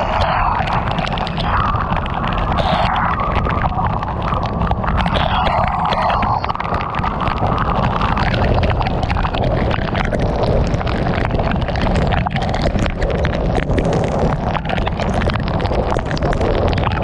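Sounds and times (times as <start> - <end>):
heavy rain on a car: 6.2 - 17.0.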